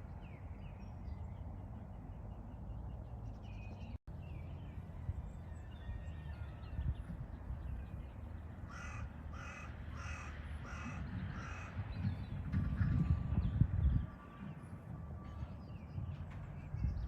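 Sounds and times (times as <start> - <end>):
bird harsh calls: 8.7 - 12.1.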